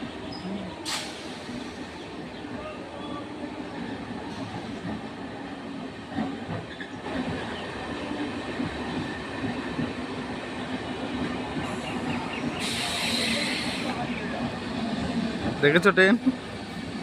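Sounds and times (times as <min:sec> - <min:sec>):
train rumbling along track: 0:00.0 - 0:17.0
loud hiss: 0:12.6 - 0:14.1.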